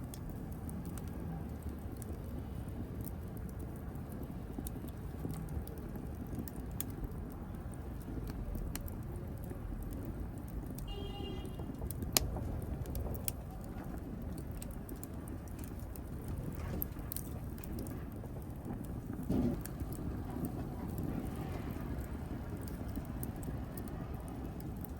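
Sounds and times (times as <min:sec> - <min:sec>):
wood fire rumbling and crackling: 0:00.0 - 0:24.9
loud pop from fire: 0:10.7 - 0:24.9.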